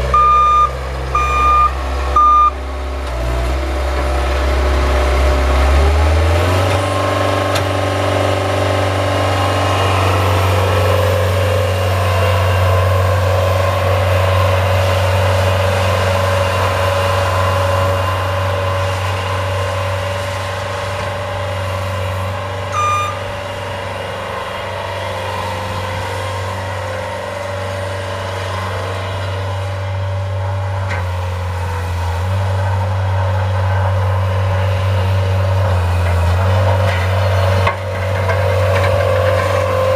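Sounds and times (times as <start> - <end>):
snowplow engine running: 0.0 - 39.9
short high-pitched beep: 0.2 - 2.6, 22.7 - 23.2.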